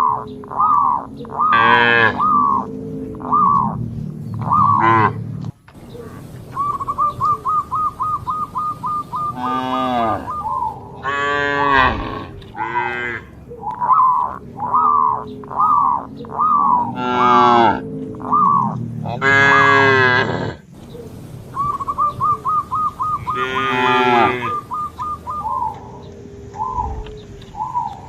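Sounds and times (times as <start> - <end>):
cattle mooing: 1.5 - 5.5, 9.2 - 10.4, 11.0 - 13.4, 16.7 - 20.7, 23.2 - 24.8.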